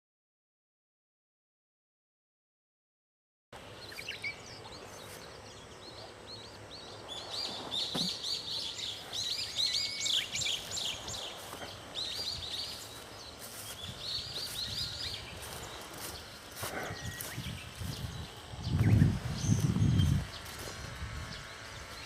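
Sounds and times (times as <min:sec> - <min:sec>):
small birds chirping: 0:03.6 - 0:22.0.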